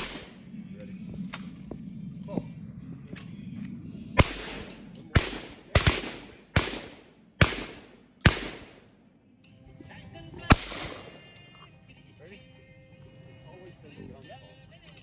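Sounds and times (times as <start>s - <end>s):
sharp ringing bangs: 0.0s - 0.5s, 4.2s - 9.0s.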